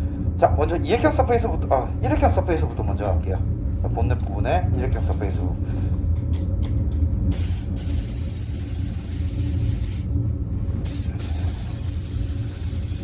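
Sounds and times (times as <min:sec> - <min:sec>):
steady low hum: 0:00.0 - 0:13.0
paint spray hissing: 0:07.3 - 0:10.1, 0:10.8 - 0:13.0.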